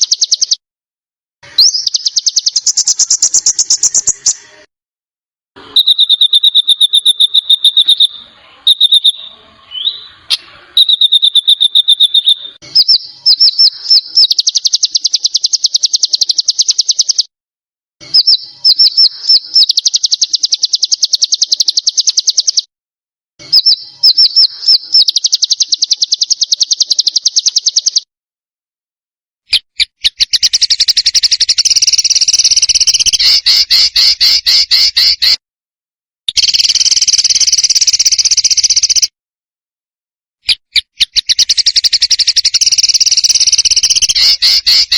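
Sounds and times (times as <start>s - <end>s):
harsh rapid bird trill: 0.0s - 0.6s, 1.4s - 4.7s, 5.6s - 17.3s, 18.0s - 22.7s, 23.4s - 28.1s, 29.5s - 35.4s, 36.3s - 39.1s, 40.4s - 44.9s
songbird rapid trills: 41.2s - 44.9s.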